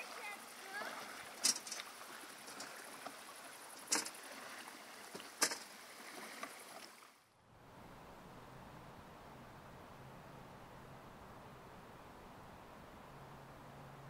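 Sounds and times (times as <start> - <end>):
faint hiss of water: 0.0 - 7.3.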